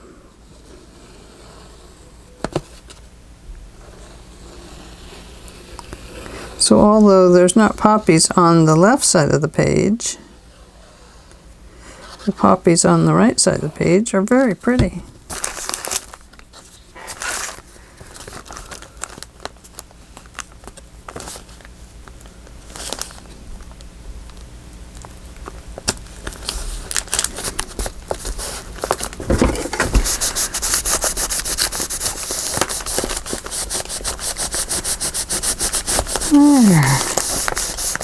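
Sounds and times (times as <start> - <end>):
paper crinkling: 14.8 - 23.4, 25.4 - 38.0
rubbing strokes on paper: 29.9 - 38.0.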